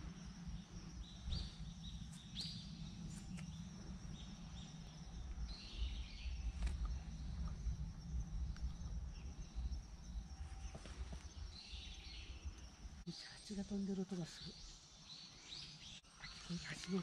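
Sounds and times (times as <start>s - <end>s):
steady low rumble: 0.0s - 13.1s
small birds chirping: 0.0s - 17.0s.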